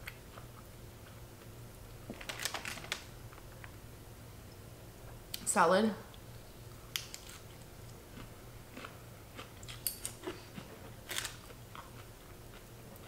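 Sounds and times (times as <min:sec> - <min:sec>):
chewing crisp salad leaves: 0:07.1 - 0:13.0.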